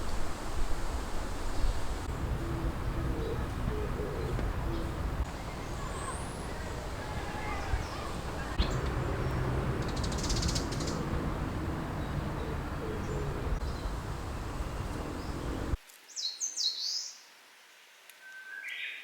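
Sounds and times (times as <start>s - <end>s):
wind rumble on microphone: 0.0s - 15.8s
wild birds calling: 1.4s - 15.8s.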